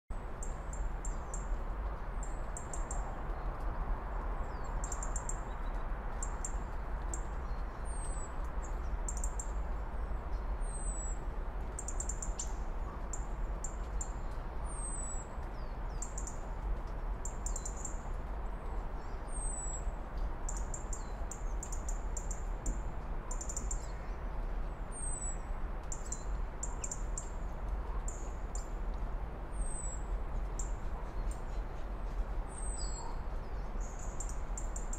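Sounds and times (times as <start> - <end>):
steady background hiss: 0.2 - 34.9
small birds chirping: 20.5 - 28.8, 29.5 - 34.9.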